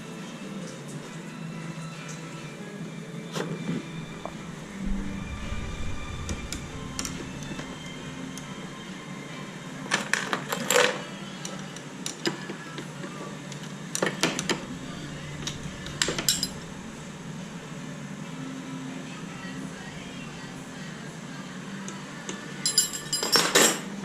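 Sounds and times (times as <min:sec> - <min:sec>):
metal tools clinking: 0:22.7 - 0:23.9.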